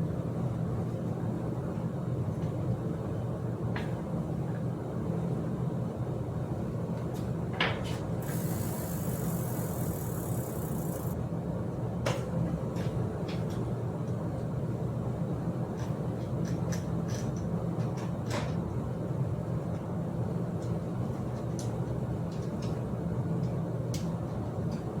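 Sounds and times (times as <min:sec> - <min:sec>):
high hiss: 0:08.2 - 0:11.2
metallic clicks of bike tools: 0:08.2 - 0:11.2
steady low hum: 0:08.2 - 0:11.2.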